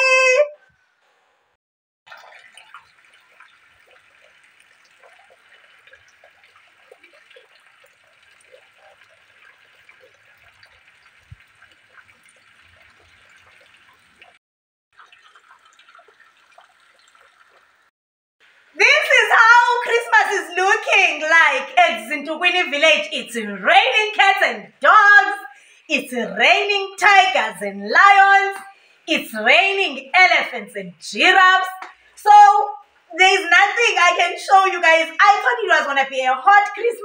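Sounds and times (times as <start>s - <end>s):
rain falling: 2.1s - 14.4s.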